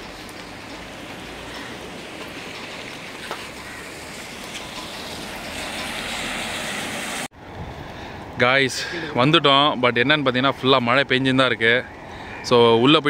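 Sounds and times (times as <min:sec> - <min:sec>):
heavy rain on wet street: 0:00.0 - 0:07.3.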